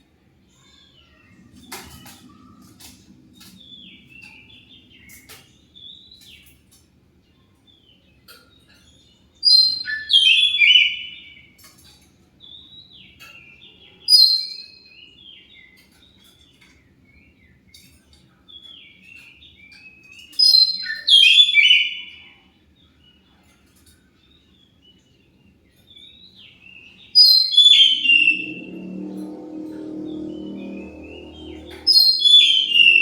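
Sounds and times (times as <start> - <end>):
bird singing whistled notes: 9.4 - 11.3, 20.3 - 22.2, 27.1 - 33.0.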